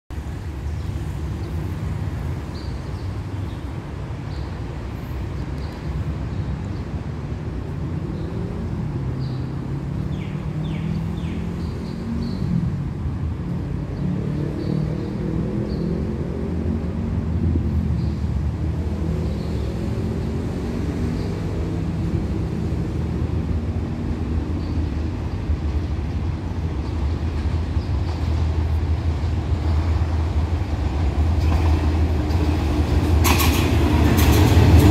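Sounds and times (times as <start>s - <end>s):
diesel train engine rumble: 21.9s - 34.9s.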